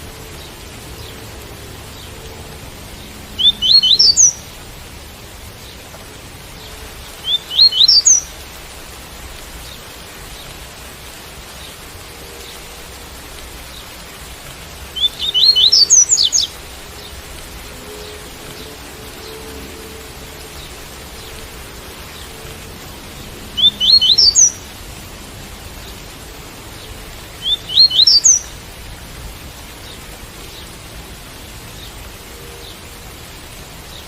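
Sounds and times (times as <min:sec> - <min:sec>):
rain hissing: 0:00.0 - 0:34.0
bird singing whistled notes: 0:03.4 - 0:04.5, 0:07.2 - 0:08.4, 0:15.0 - 0:17.1, 0:23.6 - 0:24.6, 0:27.4 - 0:28.5.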